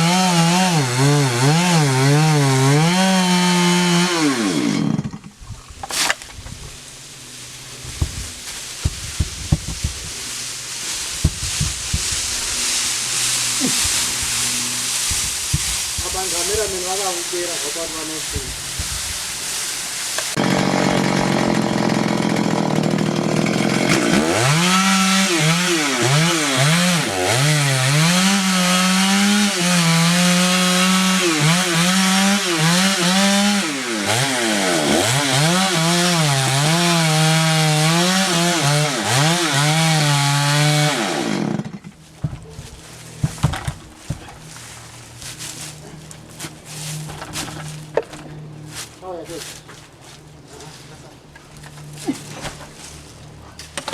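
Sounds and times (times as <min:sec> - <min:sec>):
chainsaw cutting wood: 0:00.0 - 0:48.3
knocks: 0:07.9 - 0:10.2.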